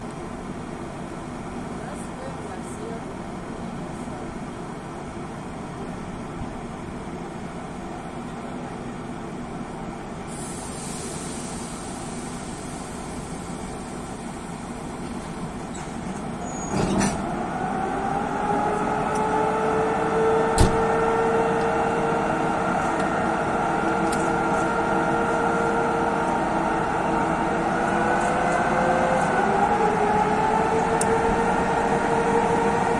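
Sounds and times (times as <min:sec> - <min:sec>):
air hissing: 0:10.3 - 0:13.0
loud clunk: 0:20.6 - 0:20.9.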